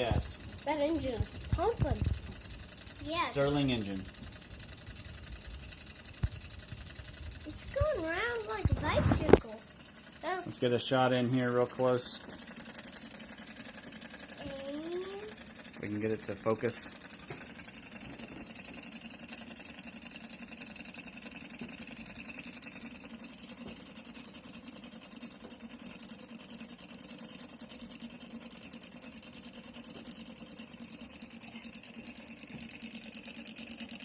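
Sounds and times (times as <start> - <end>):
stirling engine chattering: 0.0 - 5.6, 6.2 - 17.2.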